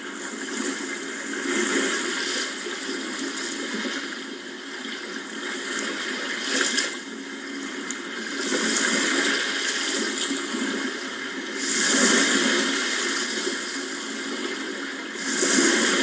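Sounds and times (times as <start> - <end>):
sea waves washing ashore: 8.2 - 16.0.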